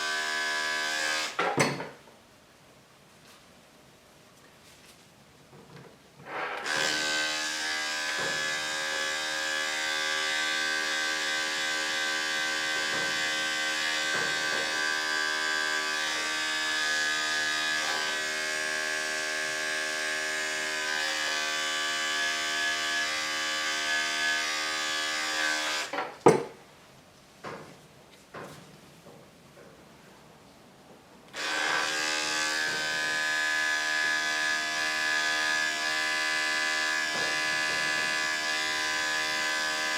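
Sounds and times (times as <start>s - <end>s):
electric clippers buzzing: 0.0s - 1.4s, 6.3s - 25.9s, 31.3s - 39.9s
knock: 26.0s - 26.6s, 27.4s - 27.7s.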